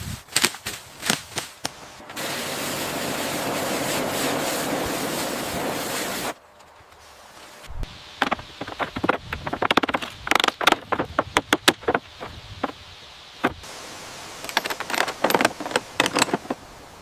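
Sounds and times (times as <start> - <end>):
clatter of clicks and knocks: 14.5 - 16.6.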